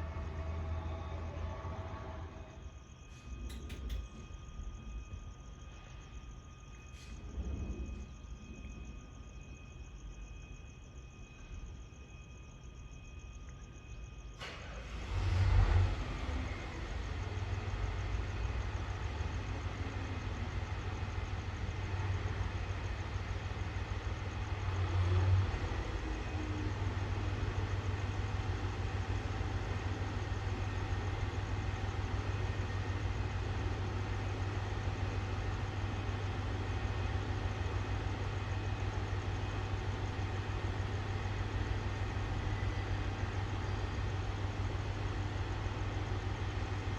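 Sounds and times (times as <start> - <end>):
diesel engine idling: 14.4 - 46.9.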